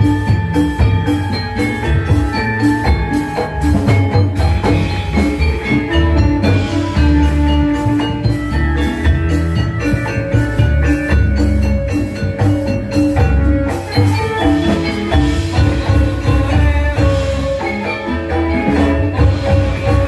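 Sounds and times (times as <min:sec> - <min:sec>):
drums: 0:00.0 - 0:20.0
metallophone notes: 0:00.0 - 0:20.0.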